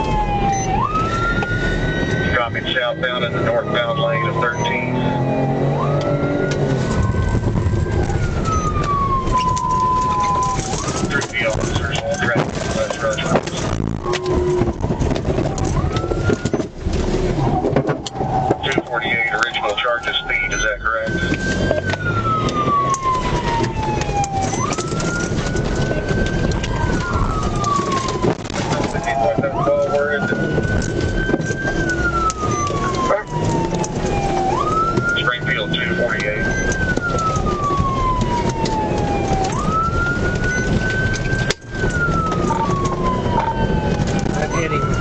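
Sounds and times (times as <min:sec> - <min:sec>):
car engine and road noise: 0:00.0 - 0:45.0
police siren wailing: 0:00.0 - 0:45.0.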